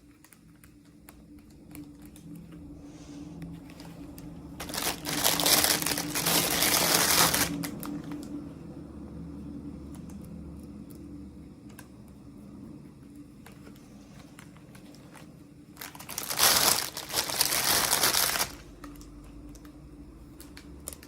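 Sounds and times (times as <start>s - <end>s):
packaging crinkling: 3.7s - 8.3s, 13.5s - 19.6s.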